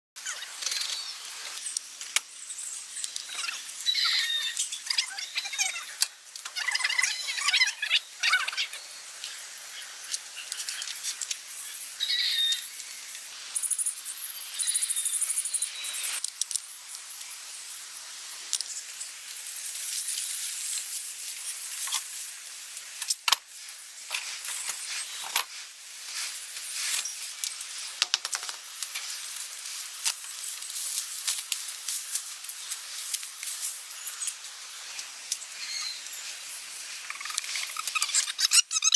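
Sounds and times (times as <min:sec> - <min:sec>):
high insect-like hiss: 0:00.2 - 0:38.9
bird chirps: 0:03.3 - 0:06.0, 0:12.0 - 0:12.7, 0:35.6 - 0:36.1.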